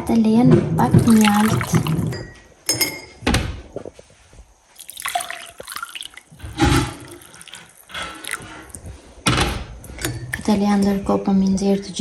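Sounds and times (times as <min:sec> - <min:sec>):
liquid splashing: 0:00.9 - 0:02.2, 0:04.8 - 0:09.0
tea being poured: 0:01.0 - 0:02.2, 0:04.8 - 0:08.8.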